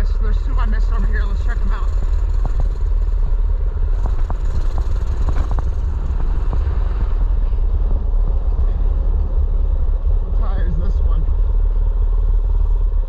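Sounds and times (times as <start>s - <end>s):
mini bike engine running: 0.0s - 7.3s
heavy low rumble: 0.0s - 13.0s.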